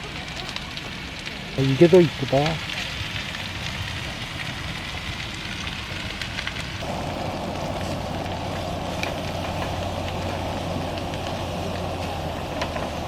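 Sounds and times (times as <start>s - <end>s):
fire crackling and popping: 0.0s - 13.0s
rushing noise: 6.6s - 13.0s
steady low hum: 6.8s - 13.0s.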